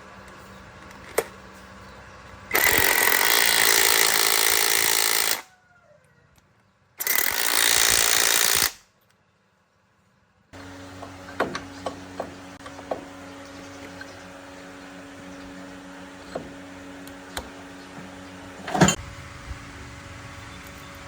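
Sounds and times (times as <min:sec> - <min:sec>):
impact wrench running: 0:02.5 - 0:05.4, 0:07.0 - 0:08.8.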